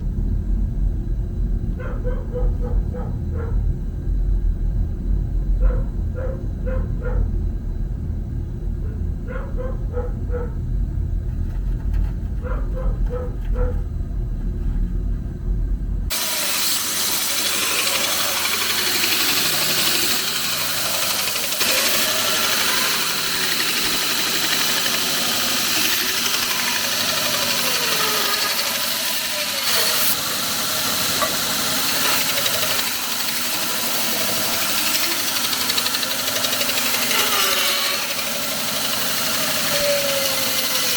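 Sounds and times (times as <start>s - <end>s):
low rumble: 0.0s - 16.1s
dog barking: 1.8s - 3.6s, 5.6s - 7.4s, 8.8s - 10.6s, 12.4s - 13.8s
loud hissing machine noise: 16.1s - 40.9s.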